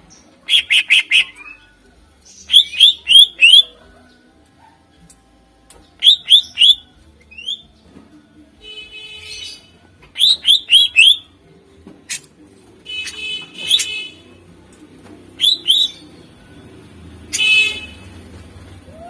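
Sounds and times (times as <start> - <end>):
bird whistled notes: 0.5 - 1.7, 2.4 - 3.7, 6.0 - 7.6, 10.2 - 11.3, 15.4 - 16.1.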